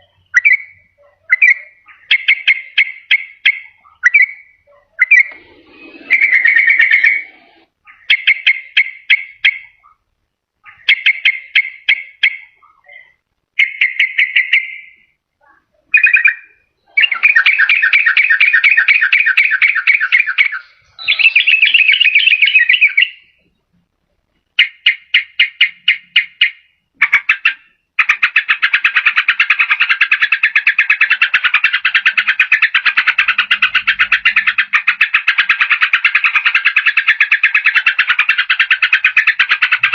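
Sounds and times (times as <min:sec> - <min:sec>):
bird song with chattering trills: 0:00.0 - 0:23.8, 0:24.6 - 0:39.9.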